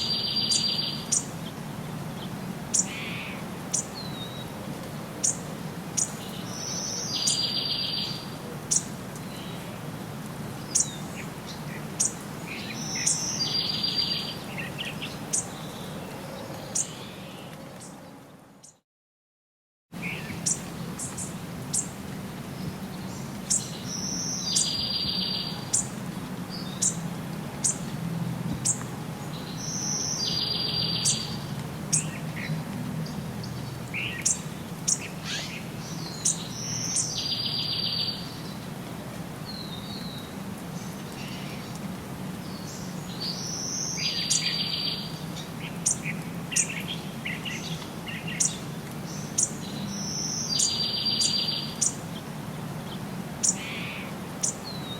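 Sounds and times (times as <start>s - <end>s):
bird song with buzzy trill: 0.0s - 1.3s, 6.0s - 9.6s, 20.0s - 21.9s, 23.0s - 25.9s, 29.4s - 32.1s, 34.0s - 38.4s.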